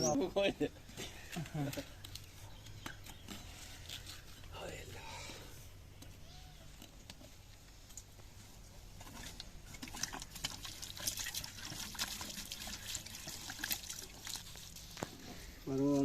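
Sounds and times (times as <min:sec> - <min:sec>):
water trickling and splashing: 0:08.9 - 0:16.0.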